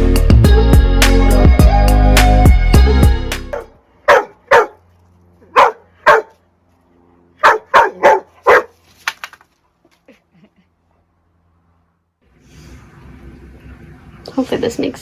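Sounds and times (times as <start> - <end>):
dog barking: 3.6 - 4.8, 5.4 - 6.4, 7.4 - 8.8.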